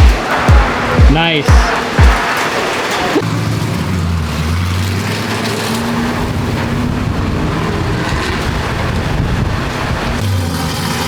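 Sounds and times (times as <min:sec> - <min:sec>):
vehicle engine droning: 0:00.0 - 0:11.0
wind or road rushing noise: 0:04.0 - 0:11.0.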